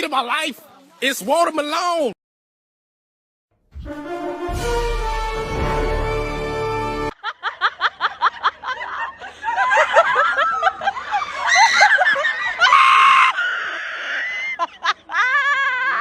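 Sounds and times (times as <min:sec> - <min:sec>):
music: 0:03.6 - 0:07.2
overlapping laughter: 0:07.1 - 0:16.0.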